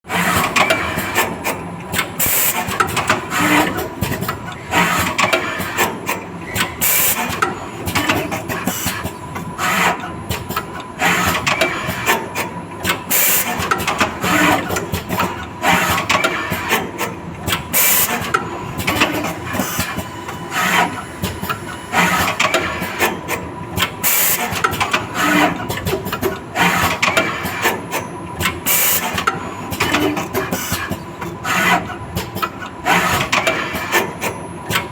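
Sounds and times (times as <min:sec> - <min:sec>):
steady machine whine: 0:18.4 - 0:23.7.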